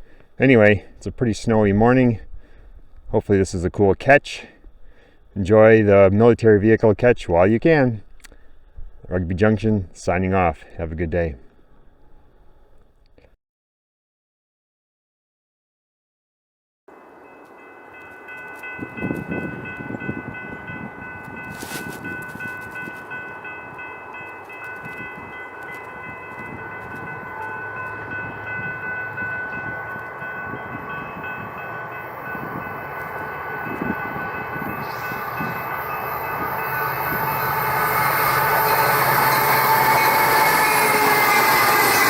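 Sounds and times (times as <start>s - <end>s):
freight train rumbling: 16.9s - 42.0s
high ringing tones: 16.9s - 42.0s.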